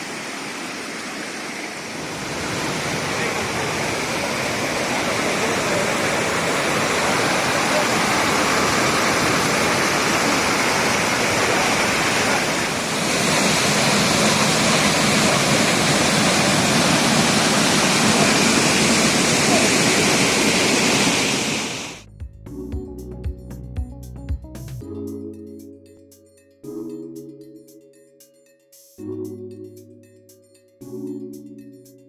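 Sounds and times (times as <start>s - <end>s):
waterfall rushing: 0.0s - 22.0s
music: 22.0s - 32.0s.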